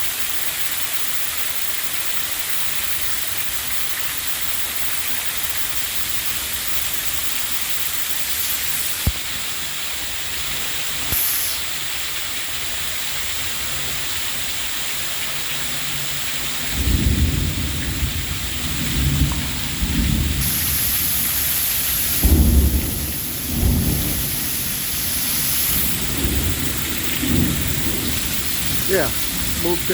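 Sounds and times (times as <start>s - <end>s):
torrential rain: 0.0s - 29.9s
rolling thunder rumbles: 16.7s - 21.2s, 22.0s - 29.9s.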